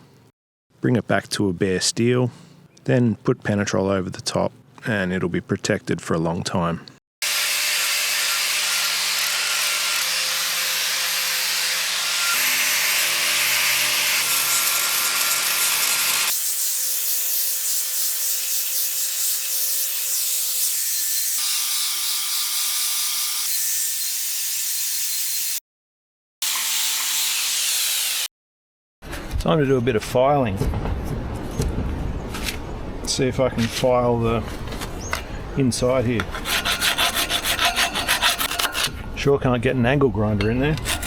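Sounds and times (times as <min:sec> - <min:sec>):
angle grinder grinding metal: 0:07.2 - 0:25.6, 0:36.3 - 0:38.9, 0:40.8 - 0:41.0.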